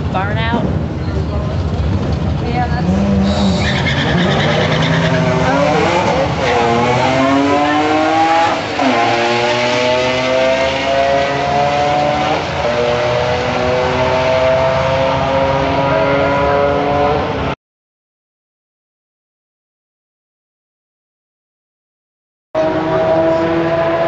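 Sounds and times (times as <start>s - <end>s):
car engine at full throttle: 0.0s - 17.6s, 22.6s - 24.0s.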